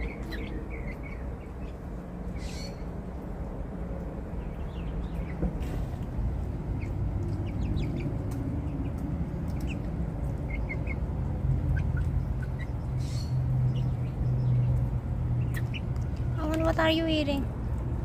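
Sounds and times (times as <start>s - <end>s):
birds chirping: 0.0s - 17.5s.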